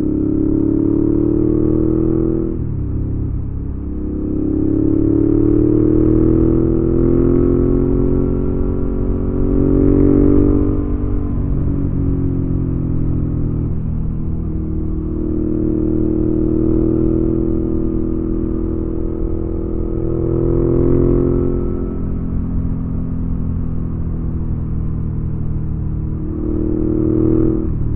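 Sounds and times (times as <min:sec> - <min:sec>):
motorcycle engine revving: 0:00.0 - 0:23.7, 0:24.4 - 0:27.9.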